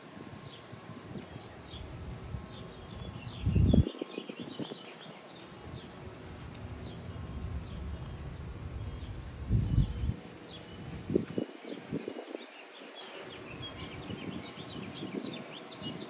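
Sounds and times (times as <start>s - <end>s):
low outdoor rumble: 0.2s - 12.0s
small birds chirping: 0.4s - 16.0s.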